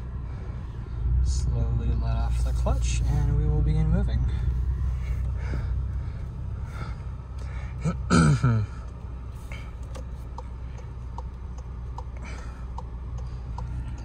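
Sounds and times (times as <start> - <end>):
car engine humming: 0.0 - 14.0
throat clearing: 7.8 - 8.8
faint regular ticks: 12.7 - 14.0.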